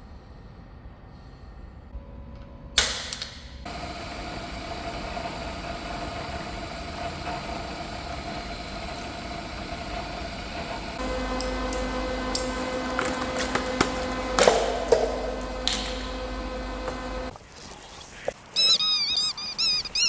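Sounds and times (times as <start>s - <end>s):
machine running with a whine: 3.7s - 17.3s.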